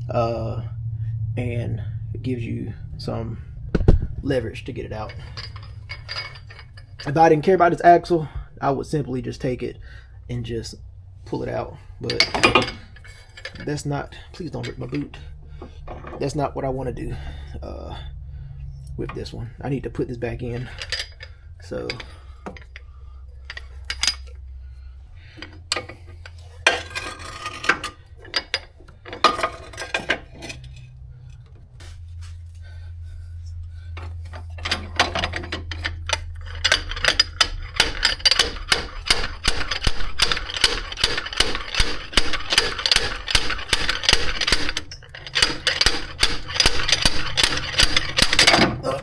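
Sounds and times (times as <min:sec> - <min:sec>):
metal clacks: 0:04.9 - 0:07.4, 0:12.0 - 0:13.9, 0:34.0 - 0:49.0
slide hammer metal impacts: 0:12.1 - 0:13.7.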